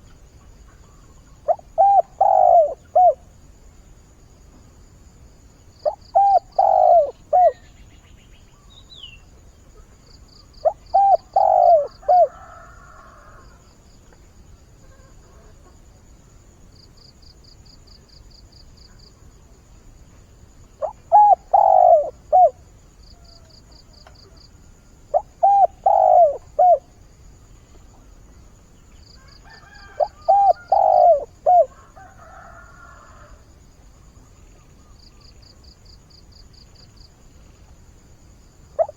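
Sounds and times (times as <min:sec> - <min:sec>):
dove cooing: 0:01.4 - 0:03.3, 0:05.8 - 0:07.7, 0:10.6 - 0:13.4, 0:20.8 - 0:24.4, 0:25.1 - 0:27.0, 0:29.5 - 0:33.3.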